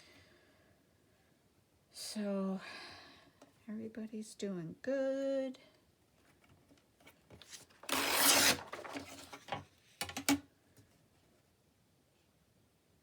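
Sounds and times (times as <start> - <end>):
paper rustling: 7.4 - 9.6.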